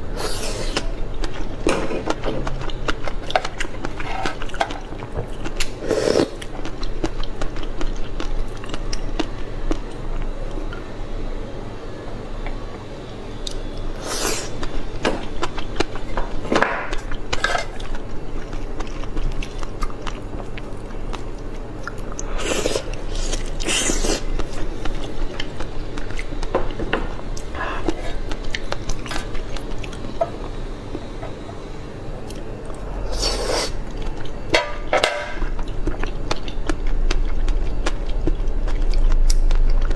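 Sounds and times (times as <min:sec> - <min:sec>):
person biting and chewing food: 0:21.2 - 0:26.5.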